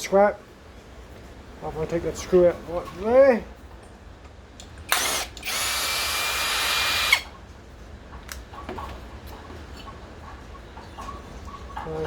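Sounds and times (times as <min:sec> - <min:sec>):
drill click: 0:04.6 - 0:07.3
power drill whining: 0:04.9 - 0:07.3.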